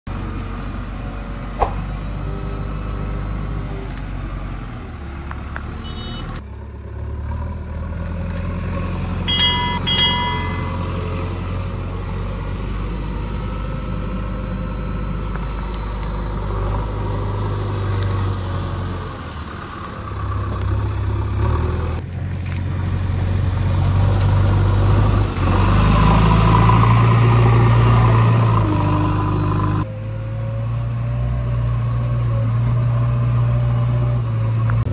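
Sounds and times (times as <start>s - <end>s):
diesel engine running: 0.1s - 34.9s
short beeps: 9.3s - 10.8s.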